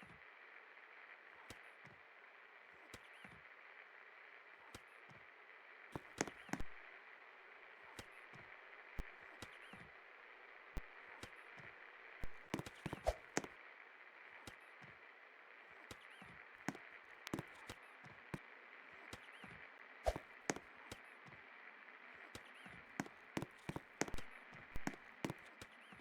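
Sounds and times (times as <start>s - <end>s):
sharp clicks and knocks: 23.0s - 25.7s.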